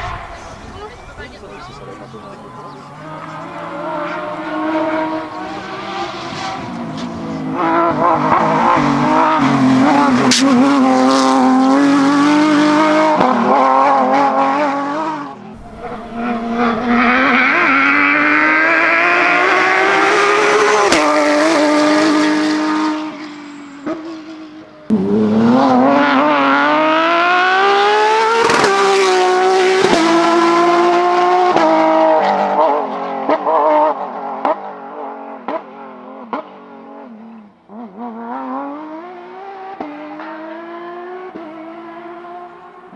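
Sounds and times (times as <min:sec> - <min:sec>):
car engine at full throttle: 0:00.0 - 0:42.9.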